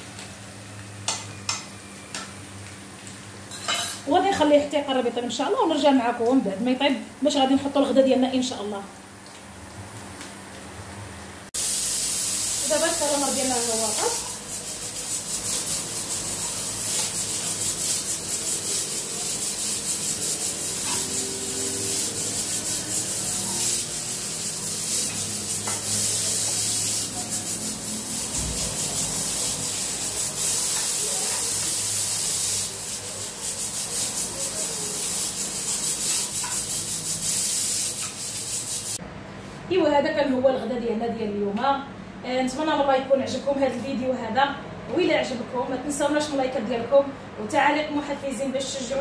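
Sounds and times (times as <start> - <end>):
calamari sizzling in hot oil: 11.5 - 39.0
spatula scraping a pan: 13.5 - 39.0.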